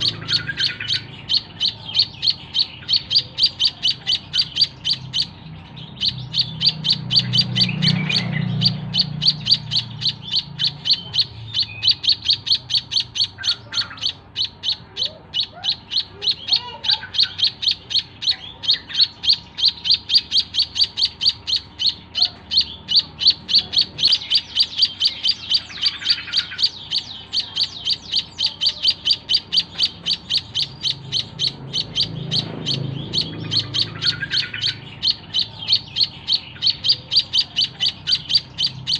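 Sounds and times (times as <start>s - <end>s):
bird chirping rapidly: 0.0s - 38.9s.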